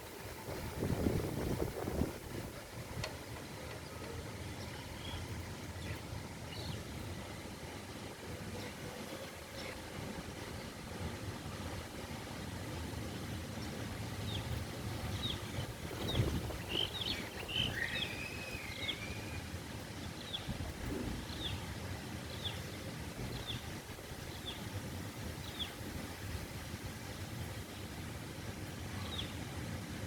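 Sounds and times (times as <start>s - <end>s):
wind buffeting microphone: 0.0s - 3.6s, 14.3s - 18.8s, 20.2s - 22.4s, 23.0s - 26.7s.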